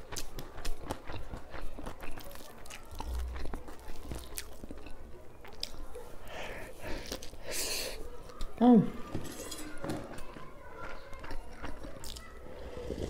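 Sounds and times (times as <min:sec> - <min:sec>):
chewing and wet mouth clicks: 0:00.0 - 0:06.0, 0:10.8 - 0:12.4.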